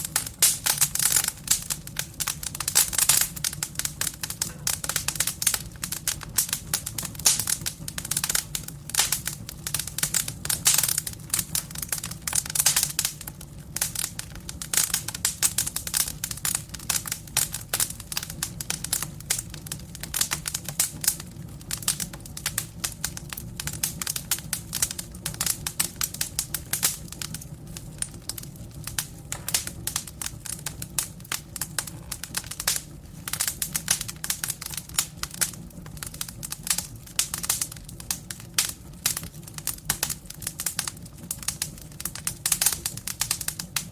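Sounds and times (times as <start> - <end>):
firewood crackling and popping: 0.0 - 43.9
low rumble of flames: 0.0 - 43.9.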